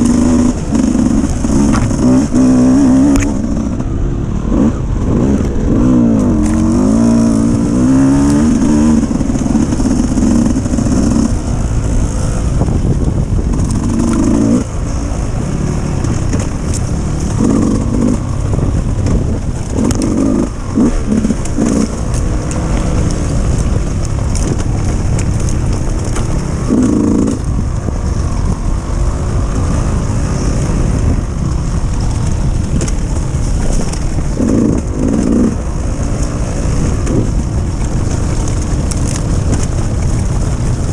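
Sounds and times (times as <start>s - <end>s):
dirt bike engine revving: 0.0s - 12.6s, 13.5s - 28.2s, 33.8s - 37.4s.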